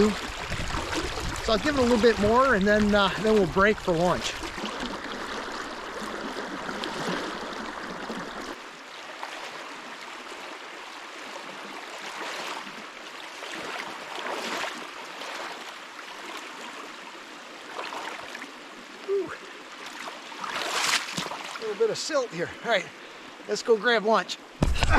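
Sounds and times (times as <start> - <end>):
stream babbling: 0.0 - 24.9.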